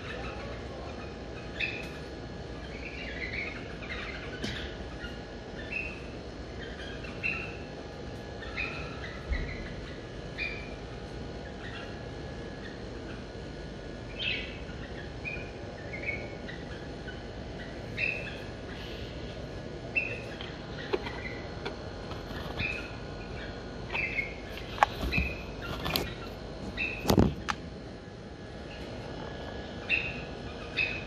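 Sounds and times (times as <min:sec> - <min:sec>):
caged birds chirping: 0:00.0 - 0:31.0.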